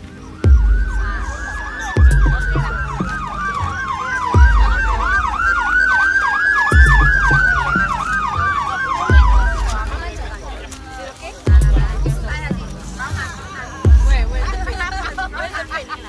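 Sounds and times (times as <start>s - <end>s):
siren wailing: 0.0s - 10.5s
siren yelp: 0.0s - 10.5s
heavy low thump: 0.5s - 1.4s, 2.0s - 5.7s, 6.7s - 8.4s, 9.1s - 10.4s, 11.5s - 12.9s, 13.9s - 14.8s.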